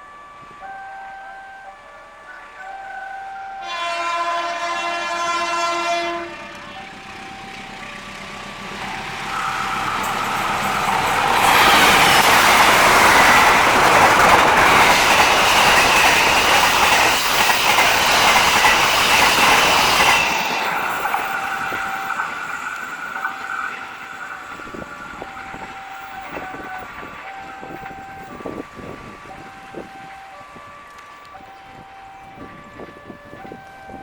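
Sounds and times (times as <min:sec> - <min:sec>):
crossing alarm stepping tones: 0:00.0 - 0:34.0
train wheels rushing on rails: 0:02.7 - 0:34.0
train horn blast: 0:02.9 - 0:06.8.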